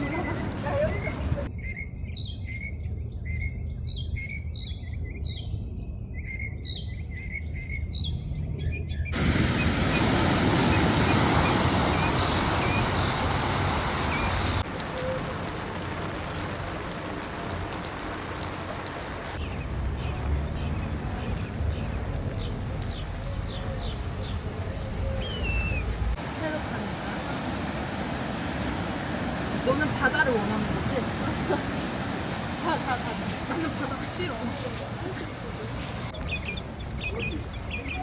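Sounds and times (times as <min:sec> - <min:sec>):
rushing water: 0:00.0 - 0:01.5, 0:09.2 - 0:38.0
songbird chirping: 0:19.4 - 0:38.0.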